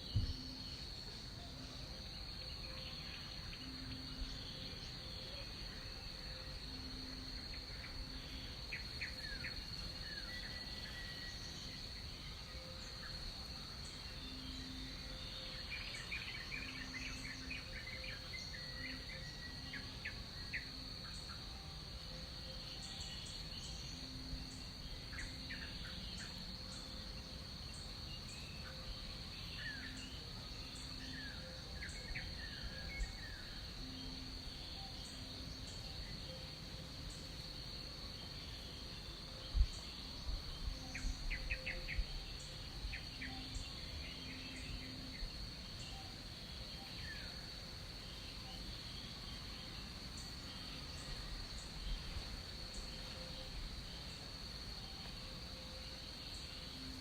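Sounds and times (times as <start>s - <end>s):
high-pitched insect drone: 0.0s - 57.0s.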